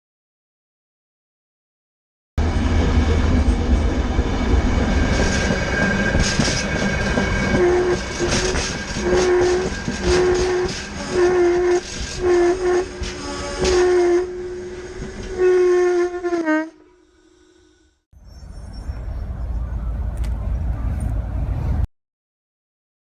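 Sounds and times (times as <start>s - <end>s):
train rumbling and clacking: 2.4s - 15.4s
train horn short blasts: 7.5s - 17.0s.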